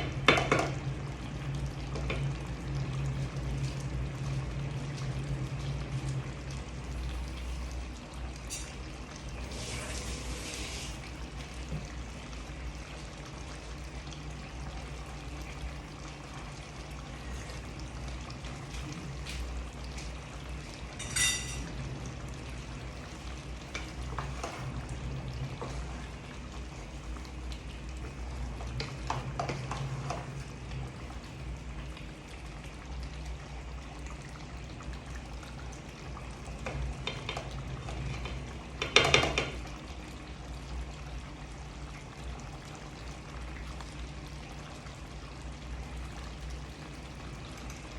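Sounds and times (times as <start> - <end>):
food frying sizzle: 0.0 - 47.9
stirring in a pot: 15.6 - 31.7
metal utensil clinking on pot: 21.0 - 21.6.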